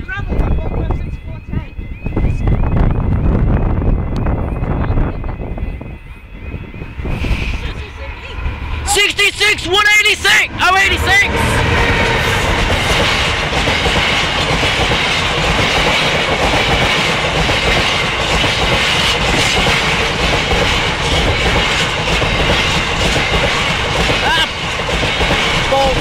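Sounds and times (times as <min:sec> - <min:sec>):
diesel locomotive passing: 0:00.0 - 0:26.0
train wheels clattering over rail joints: 0:12.5 - 0:26.0.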